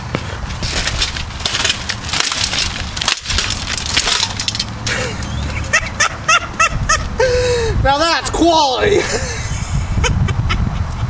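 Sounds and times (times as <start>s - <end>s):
plastic fan cracking apart: 0.5s - 5.1s.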